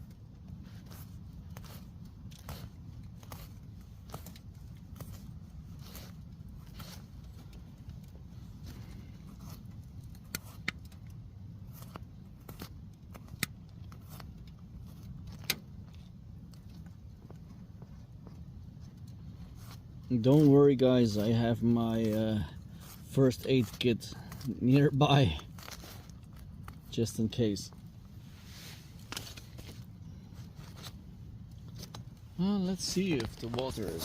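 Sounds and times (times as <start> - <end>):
low fire rumble: 0.0 - 34.0
wood stove fire crackling: 14.4 - 30.1.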